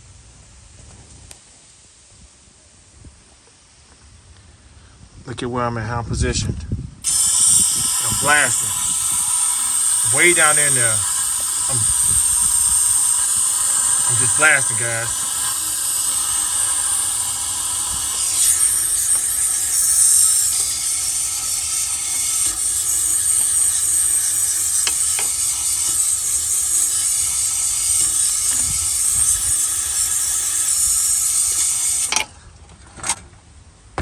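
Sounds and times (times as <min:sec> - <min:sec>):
aerosol spray hissing: 0:07.0 - 0:32.2.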